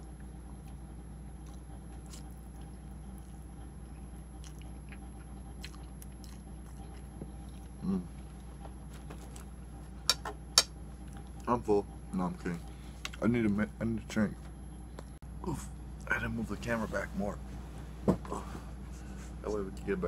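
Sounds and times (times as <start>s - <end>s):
person chewing noodles: 0.0s - 8.6s
steady low hum: 0.0s - 20.0s
person humming briefly: 7.8s - 8.1s.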